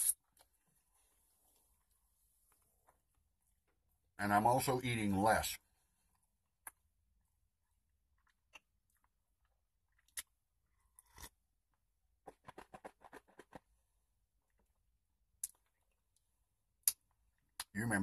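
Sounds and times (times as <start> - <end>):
chewing sandwich: 6.1 - 17.8.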